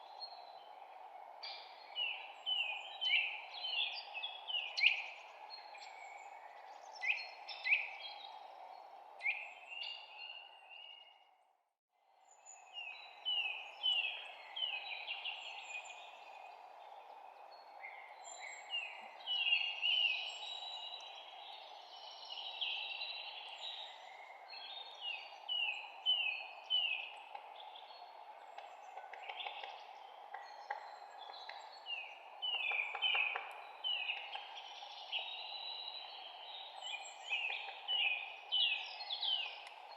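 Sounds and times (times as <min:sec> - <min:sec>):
songbirds chirping and trilling: 0:12.2 - 0:39.9.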